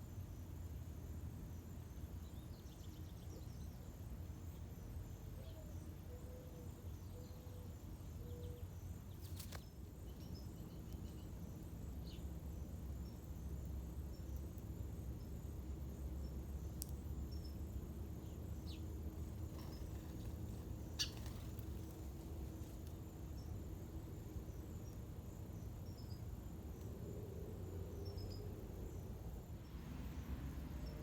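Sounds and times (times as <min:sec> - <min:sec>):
bird chirps: 0:20.8 - 0:21.6.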